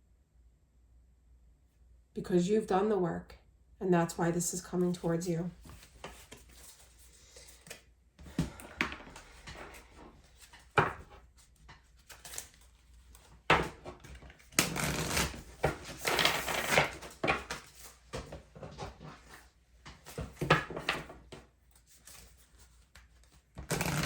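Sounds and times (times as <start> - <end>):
cards shuffling: 5.6 - 19.4, 20.0 - 24.0.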